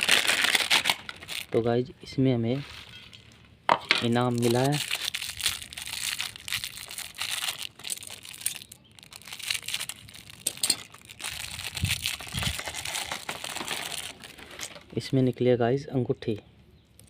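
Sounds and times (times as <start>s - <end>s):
plastic packet crinkling: 0.0s - 1.6s, 4.0s - 15.4s.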